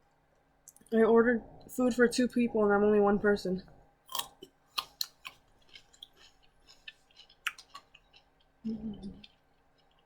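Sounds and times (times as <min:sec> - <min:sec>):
chewing and mouth clicks: 0:04.1 - 0:10.0
low voice hum: 0:08.6 - 0:09.3.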